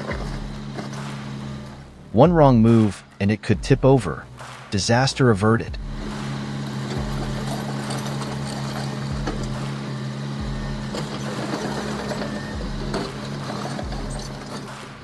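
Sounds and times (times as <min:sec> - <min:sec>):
heavy machine engine humming: 0:00.0 - 0:02.7, 0:05.8 - 0:15.0.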